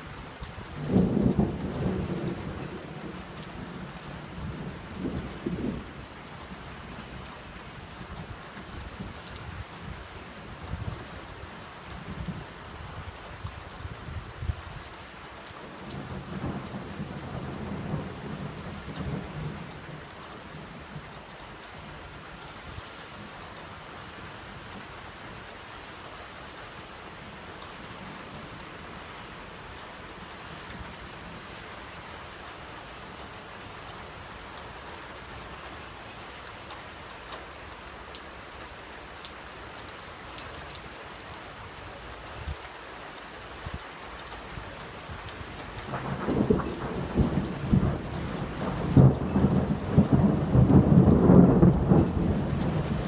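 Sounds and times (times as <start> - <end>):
steady rain: 0.0 - 53.0
thunder rumbling: 0.8 - 6.0, 45.8 - 53.0.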